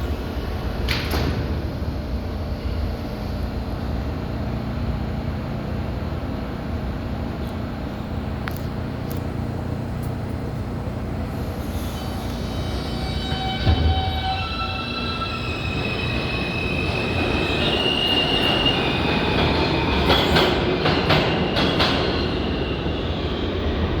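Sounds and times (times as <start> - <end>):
subway car rumbling: 0.0 - 24.0.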